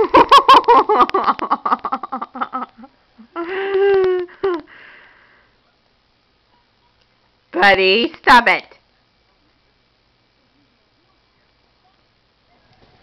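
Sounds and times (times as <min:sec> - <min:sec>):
woman laughing: 0:00.0 - 0:04.7.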